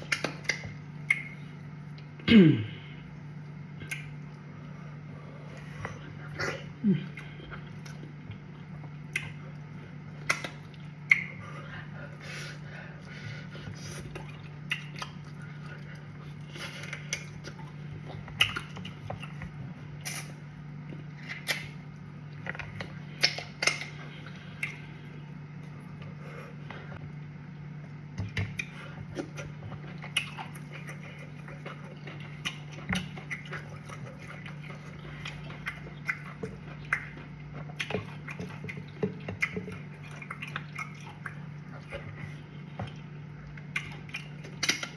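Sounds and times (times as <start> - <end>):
person chewing and smacking: 0.0 - 2.2, 2.8 - 44.9.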